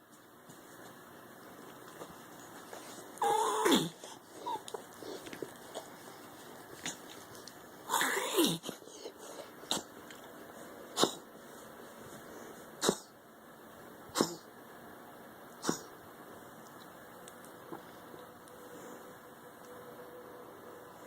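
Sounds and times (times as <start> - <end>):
dog reverse sneezing: 10.9 - 11.3, 12.8 - 13.2, 14.1 - 14.5, 15.6 - 16.0.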